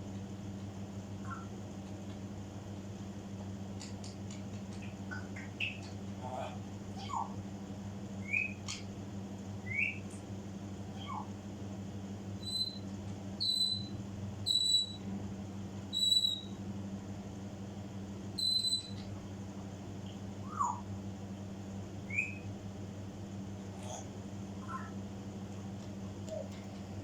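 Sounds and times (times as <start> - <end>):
parrot whistling: 1.3 - 1.5, 8.2 - 8.6, 9.6 - 10.0, 11.0 - 11.3, 12.4 - 12.8, 13.4 - 13.9, 14.5 - 15.0, 16.0 - 16.5, 18.4 - 19.0, 20.4 - 20.9, 22.1 - 22.5.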